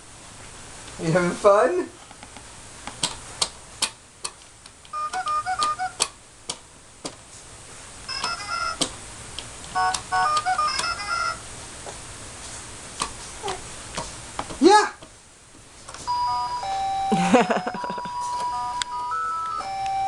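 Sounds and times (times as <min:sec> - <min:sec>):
electronic beeping tunes from toy: 0:05.0 - 0:06.0, 0:08.1 - 0:08.8, 0:09.8 - 0:11.4, 0:16.1 - 0:20.0
button clicks: 0:05.0 - 0:06.1, 0:09.8 - 0:11.0.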